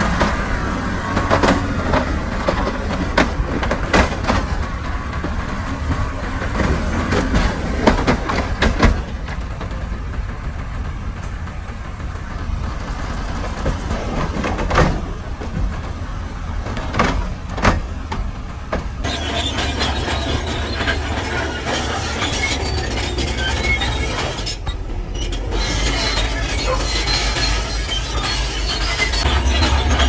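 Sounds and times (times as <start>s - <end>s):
diesel machinery rumbling: 0.0s - 30.0s
loud metallic clunks: 11.1s - 30.0s.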